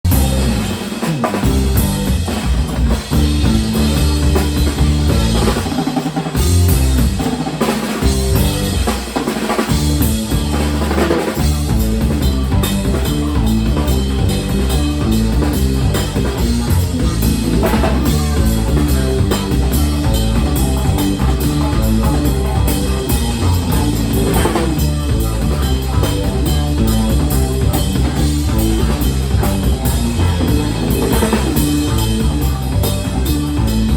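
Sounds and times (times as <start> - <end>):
stepping bass line: 0.0 - 7.4, 8.0 - 8.9, 9.7 - 33.9
band music: 0.0 - 33.9
drum kit: 0.0 - 33.9.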